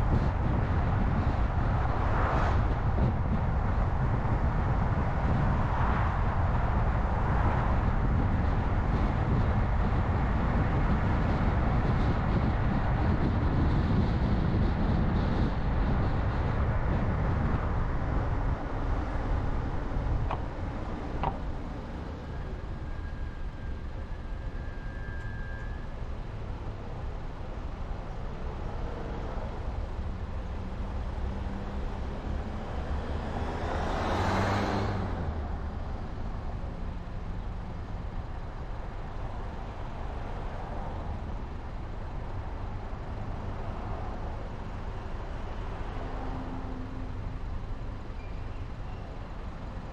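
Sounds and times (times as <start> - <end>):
car engine and tyre road noise: 0.0 - 49.9
vehicle passing close by: 31.3 - 35.7.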